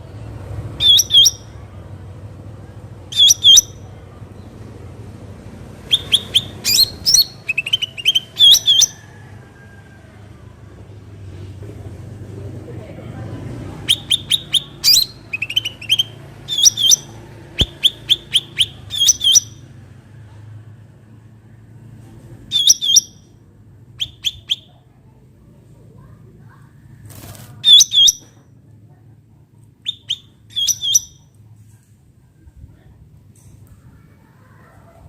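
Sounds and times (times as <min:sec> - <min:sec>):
bulbul chirping: 0:00.8 - 0:01.6, 0:03.1 - 0:03.9, 0:05.9 - 0:09.0, 0:13.9 - 0:19.6, 0:22.5 - 0:23.3, 0:27.6 - 0:28.3, 0:29.8 - 0:31.3.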